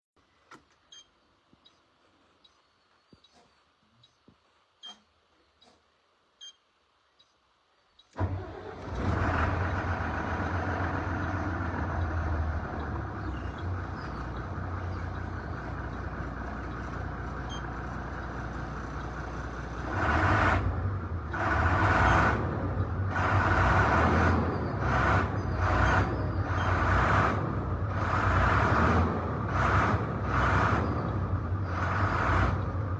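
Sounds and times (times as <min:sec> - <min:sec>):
vehicle engine running: 0:08.2 - 0:32.9.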